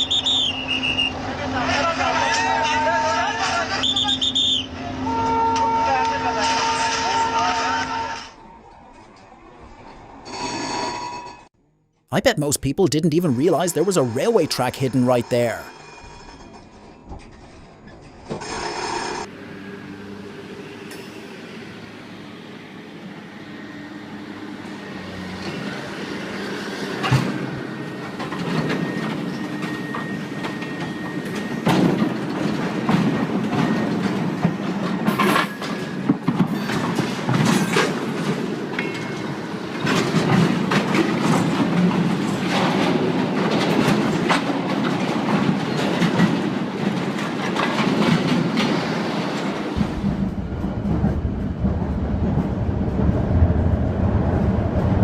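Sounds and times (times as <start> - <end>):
train running on track: 0.0 - 11.5, 12.9 - 55.0
wheels clicking over rail joints: 27.0 - 49.9.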